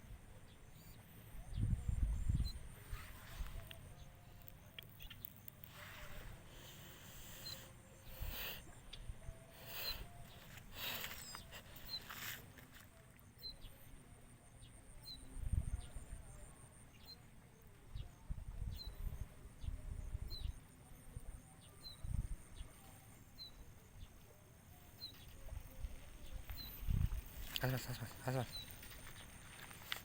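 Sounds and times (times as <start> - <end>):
faint high-pitched hum: 0.0 - 30.0
bird high chirp: 7.4 - 12.4.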